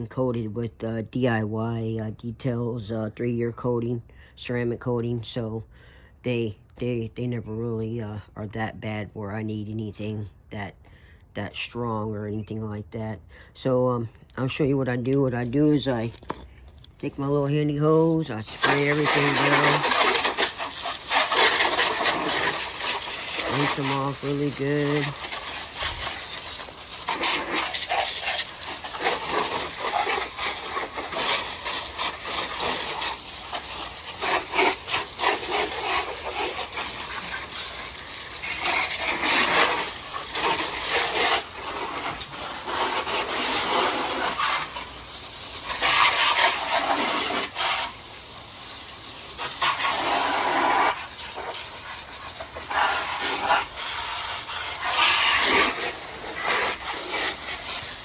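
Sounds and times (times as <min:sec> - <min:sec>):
hose spraying water on motorcycle: 0:16.9 - 0:58.0.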